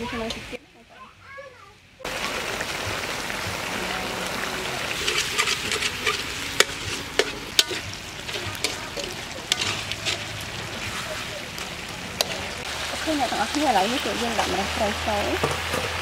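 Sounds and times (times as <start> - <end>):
eel sizzling in a hot wok: 2.0 - 16.0
spatula knocking and scraping wok: 4.9 - 16.0.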